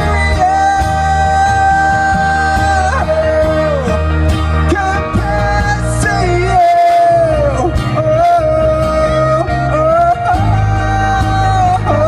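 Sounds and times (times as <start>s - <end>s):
live pop band playing: 0.0s - 12.0s
sliding lead melody: 0.0s - 12.0s.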